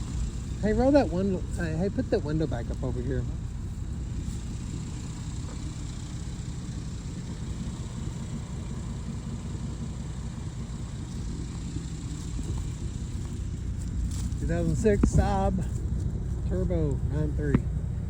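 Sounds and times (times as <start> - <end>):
car engine idling: 0.0 - 18.0
man talking: 0.6 - 3.4, 14.4 - 15.8, 16.4 - 17.7.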